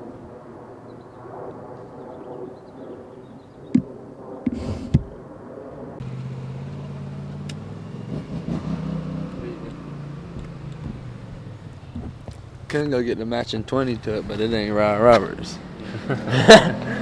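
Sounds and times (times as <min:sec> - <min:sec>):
vehicle engine humming: 0:06.0 - 0:17.0
sharp knocks: 0:09.7 - 0:12.8.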